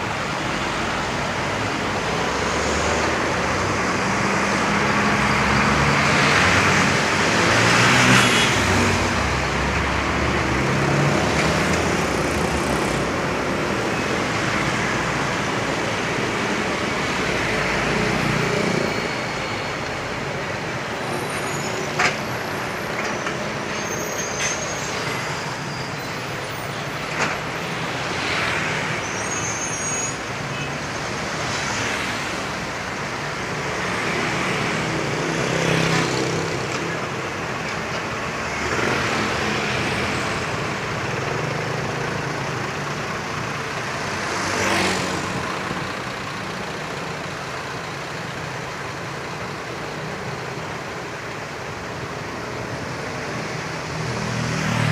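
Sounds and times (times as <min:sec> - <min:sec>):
trucks passing: 0:00.0 - 0:54.9.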